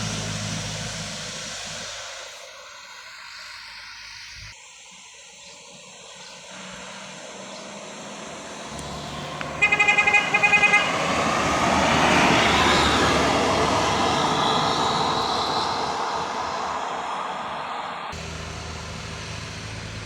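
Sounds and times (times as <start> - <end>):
heavy truck passing: 0.0 - 3.2, 6.5 - 20.0
vehicle horn short toots: 9.5 - 11.2.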